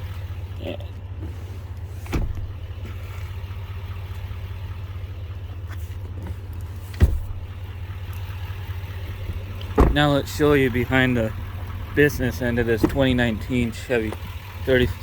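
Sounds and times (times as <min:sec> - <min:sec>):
diesel truck engine idling: 0:00.0 - 0:15.0
dull thumps: 0:02.0 - 0:03.0, 0:06.1 - 0:07.6, 0:09.1 - 0:10.4.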